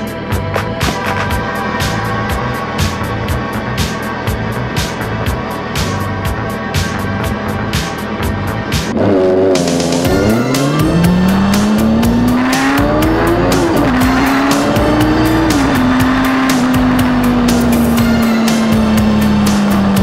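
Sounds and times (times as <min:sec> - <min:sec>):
music with steady beat: 0:00.0 - 0:20.0
motorcycle engine accelerating: 0:08.5 - 0:20.0.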